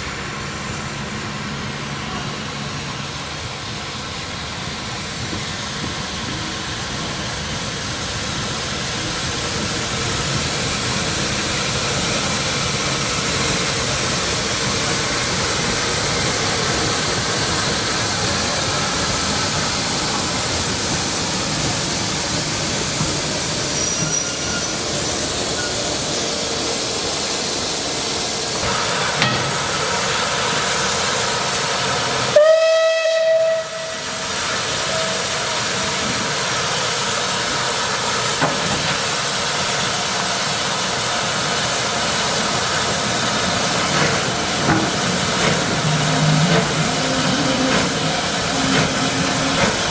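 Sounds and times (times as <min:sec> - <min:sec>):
train running rushing hiss: 0:00.0 - 0:49.9
train whistle blast: 0:32.2 - 0:36.1, 0:45.8 - 0:49.8.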